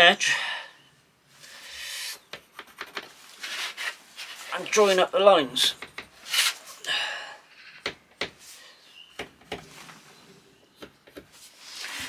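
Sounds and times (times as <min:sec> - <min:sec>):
pencil scratching on plywood: 0:02.0 - 0:04.0.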